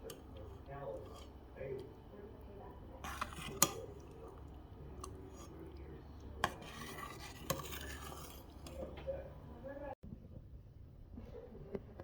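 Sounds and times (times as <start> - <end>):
utensils stirring and scraping dishes: 0.0 - 9.5
low steady hum: 0.0 - 12.0.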